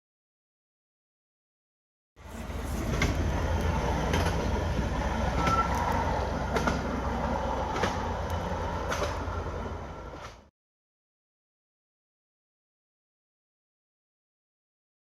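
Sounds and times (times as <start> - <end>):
train rumbling on rails: 2.2 - 10.5
wheels clacking over rail joints: 2.2 - 10.5.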